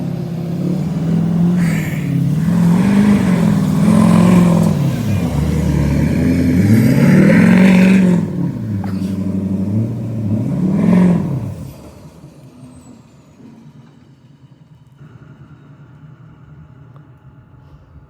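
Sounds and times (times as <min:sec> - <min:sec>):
truck engine revving hard: 0:00.0 - 0:12.1.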